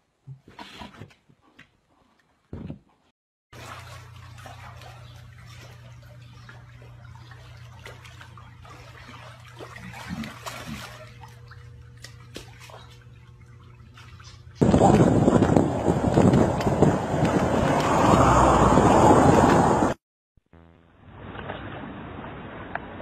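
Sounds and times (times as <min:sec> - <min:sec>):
pool water splashing: 0:03.5 - 0:19.4.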